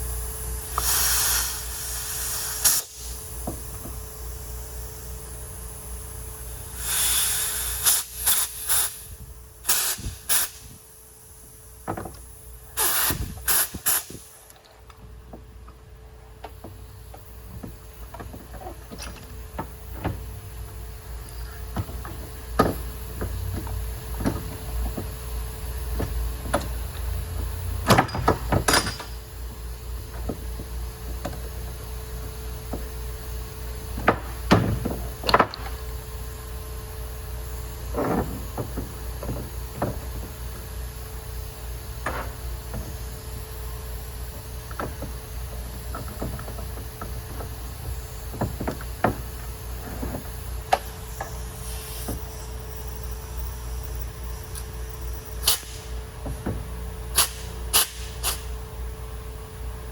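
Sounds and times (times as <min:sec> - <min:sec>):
hiss: 0:00.0 - 0:14.5, 0:50.7 - 0:53.2, 0:53.9 - 0:56.0, 0:57.1 - 0:58.6
sharp knocks and clicks: 0:21.7 - 0:25.2, 0:25.9 - 0:29.2, 0:44.7 - 0:51.4.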